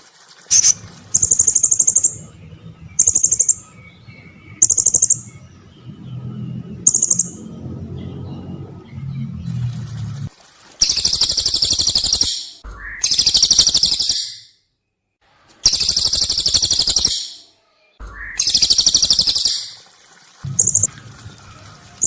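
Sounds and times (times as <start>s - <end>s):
low hum: 0.4s - 10.3s, 20.4s - 22.0s
songbird high-pitched trills: 0.5s - 9.6s, 10.8s - 14.5s, 15.7s - 17.5s, 18.1s - 19.8s, 20.5s - 20.9s.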